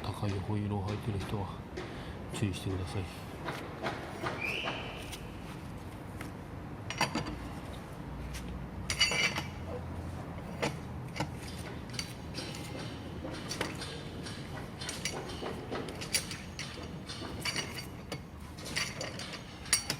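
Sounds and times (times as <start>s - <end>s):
metallic clinks of tools and bolts: 8.8s - 9.8s, 10.5s - 19.9s.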